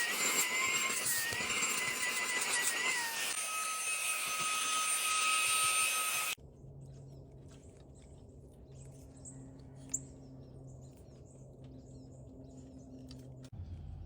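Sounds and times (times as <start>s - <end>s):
handheld vacuum motor whining: 0.0s - 6.4s
low hum: 6.4s - 14.0s.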